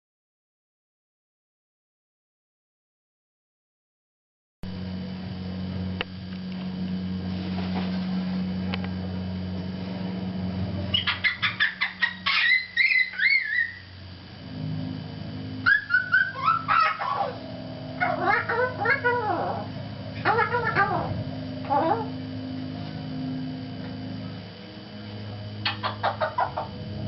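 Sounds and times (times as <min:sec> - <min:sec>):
steady low hum: 0:04.6 - 0:27.0
bird whistle-like calls: 0:10.9 - 0:13.9, 0:15.6 - 0:17.4, 0:25.6 - 0:26.7.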